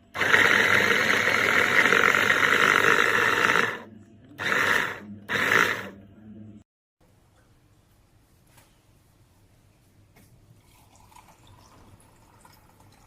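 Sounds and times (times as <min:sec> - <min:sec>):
electric chopper motor and blades: 0:00.1 - 0:06.0.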